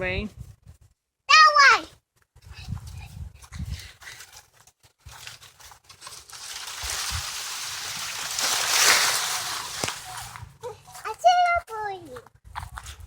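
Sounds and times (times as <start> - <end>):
footsteps crunching dry leaves: 2.7 - 11.1.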